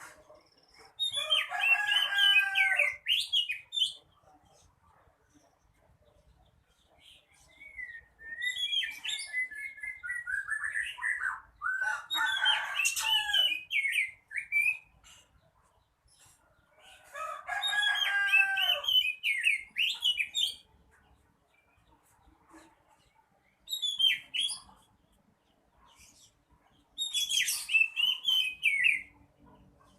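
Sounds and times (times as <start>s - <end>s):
magpie-robin singing: 1.0s - 4.0s, 7.0s - 15.2s, 17.7s - 20.7s, 23.6s - 24.9s, 26.1s - 29.2s.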